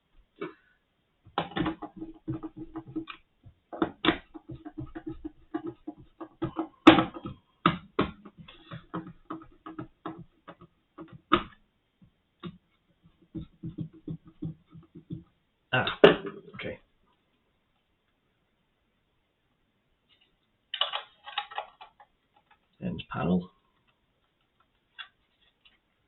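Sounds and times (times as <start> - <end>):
small plastic parts clicking: 20.1 - 22.8.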